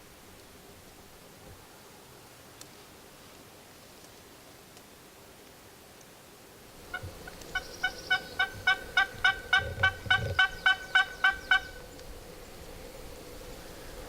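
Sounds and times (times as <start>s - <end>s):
wild turkey yelping: 6.9s - 11.8s.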